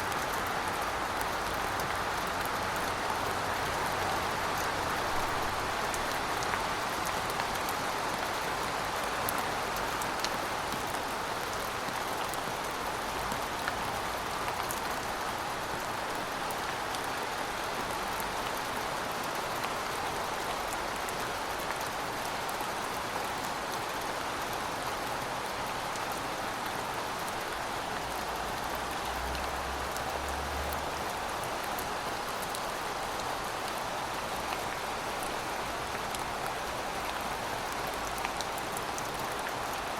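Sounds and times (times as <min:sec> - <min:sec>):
rain hissing on a surface: 0:00.0 - 0:39.9.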